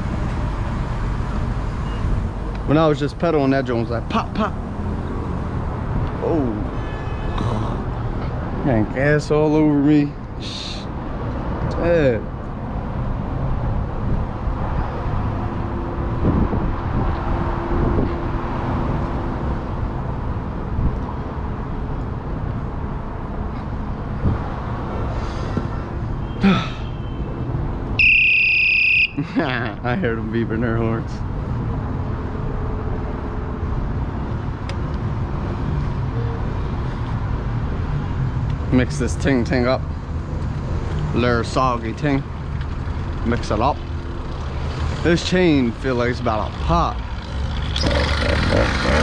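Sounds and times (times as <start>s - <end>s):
road noise: 0.0s - 49.0s
wind buffeting microphone: 16.0s - 18.2s.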